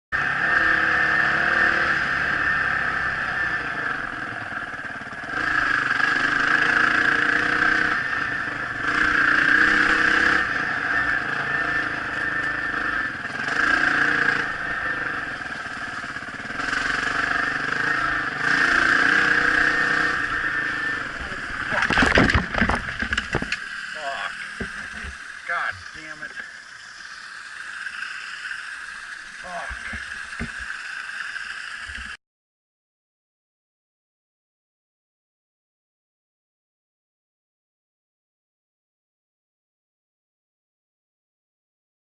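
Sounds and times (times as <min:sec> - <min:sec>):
dirt bike engine revving: 0:00.2 - 0:32.2.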